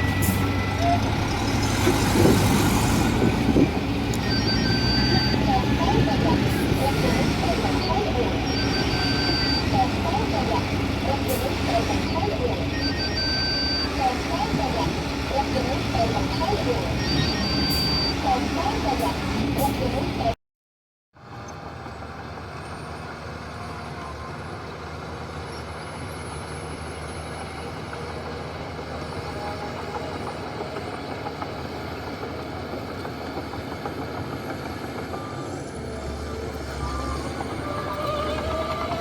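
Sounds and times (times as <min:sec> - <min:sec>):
heavy diesel machinery running: 0:00.0 - 0:20.4.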